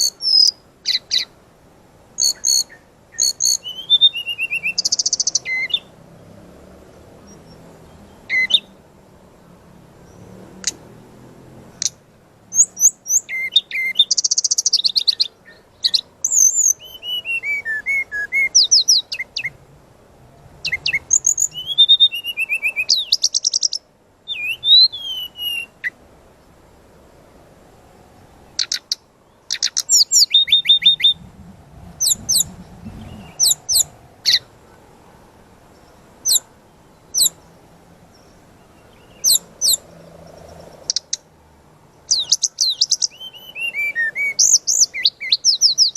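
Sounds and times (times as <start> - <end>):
bird singing whistles and trills: 0.0 - 1.3, 2.2 - 5.9, 7.2 - 8.8, 12.5 - 19.6, 20.6 - 26.0, 28.6 - 31.3, 32.0 - 34.5, 35.8 - 37.4, 38.1 - 39.8, 42.1 - 45.9
sharp bird notes: 2.2 - 5.9, 12.5 - 19.6, 20.6 - 26.0, 28.6 - 31.3, 42.1 - 45.9.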